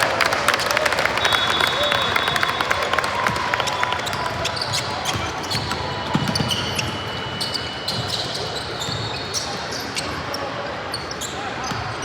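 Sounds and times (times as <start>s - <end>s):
shoe squeaks: 4.1s - 12.0s.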